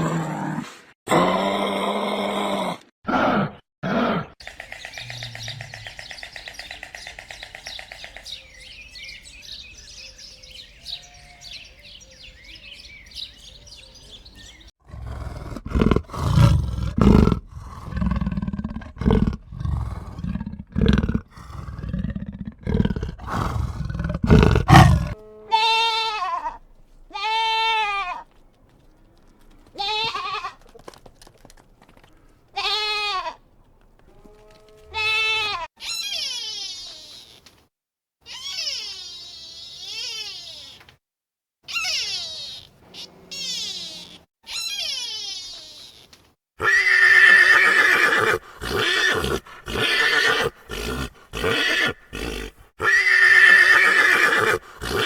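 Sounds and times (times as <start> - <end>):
deep rough animal calls: 4.4 - 8.6, 14.8 - 25.2
animal bleating: 24.3 - 28.4, 29.4 - 31.0, 32.6 - 33.4, 34.1 - 37.4, 38.3 - 40.9, 41.7 - 55.0.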